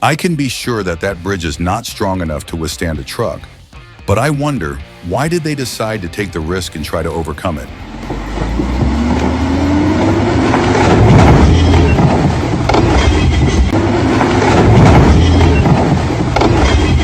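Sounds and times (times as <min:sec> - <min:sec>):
truck engine labouring: 0:06.5 - 0:17.0
knocks and clatter: 0:07.8 - 0:17.0.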